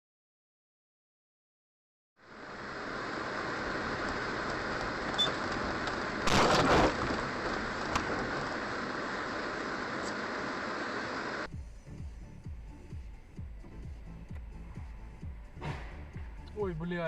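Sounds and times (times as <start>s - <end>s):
noise burst: 2.2s - 11.5s
car road and engine noise: 2.2s - 17.0s.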